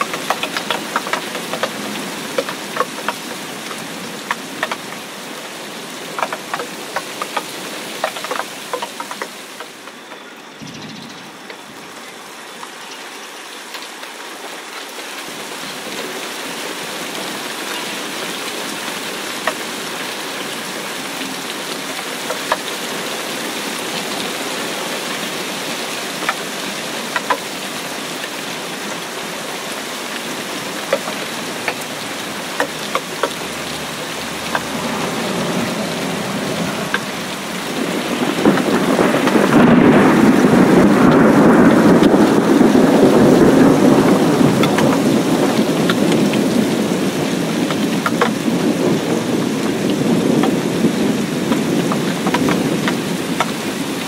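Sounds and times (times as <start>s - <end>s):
rain pattering on puddle: 0.0s - 54.0s.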